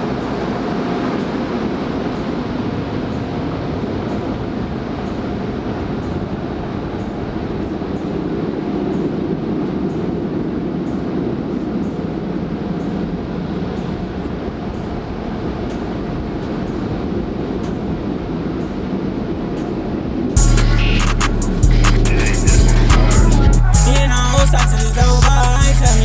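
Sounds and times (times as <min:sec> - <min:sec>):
car cabin road and engine noise: 0:15.2 - 0:26.0.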